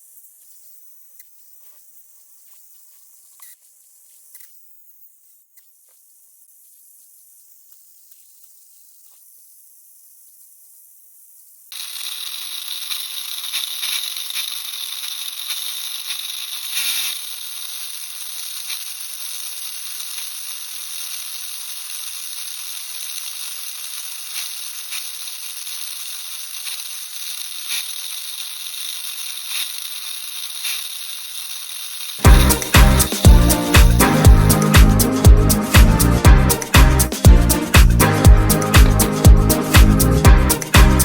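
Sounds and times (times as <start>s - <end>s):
small electric motor whine: 2.5s - 6.2s, 11.7s - 34.7s
music: 32.2s - 41.0s.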